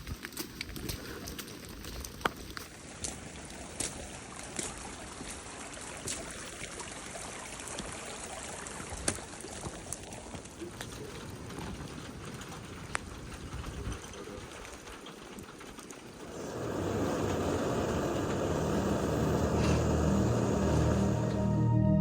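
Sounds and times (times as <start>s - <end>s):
steady rain: 0.0s - 21.6s
raindrops tapping: 8.9s - 21.4s.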